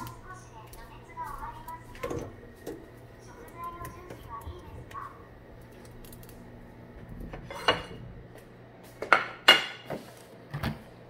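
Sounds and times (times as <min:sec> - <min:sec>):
dishes and utensils clinking: 0:07.4 - 0:08.0, 0:09.0 - 0:10.0.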